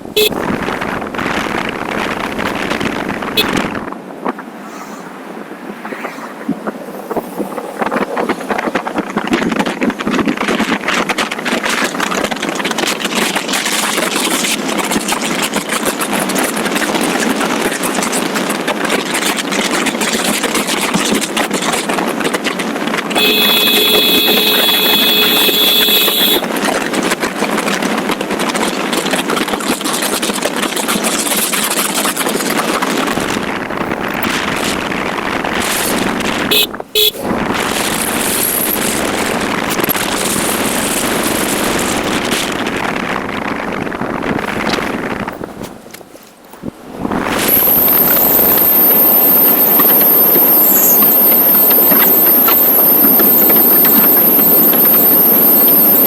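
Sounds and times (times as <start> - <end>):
horn-like tone: 0.0 - 1.0, 3.3 - 3.8, 23.2 - 26.4, 36.5 - 37.4, 47.4 - 56.0
motorcycle engine: 0.0 - 3.9, 23.1 - 26.4, 33.0 - 45.4, 47.0 - 56.0
wind and road noise: 0.0 - 56.0.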